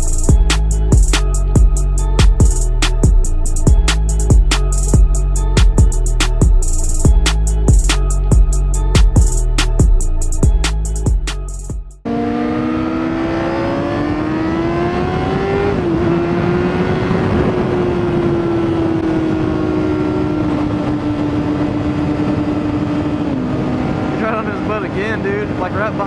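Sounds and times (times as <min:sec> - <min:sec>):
motorcycle engine running: 0:00.0 - 0:25.3
wind noise: 0:13.7 - 0:25.9.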